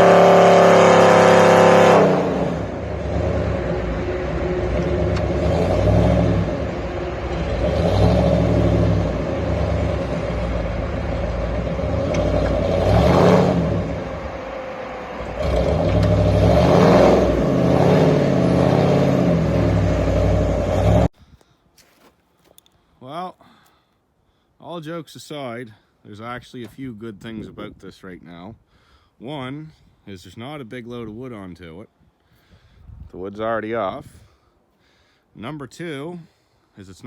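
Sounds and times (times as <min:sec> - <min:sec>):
truck engine revving under load: 0:00.0 - 0:21.1.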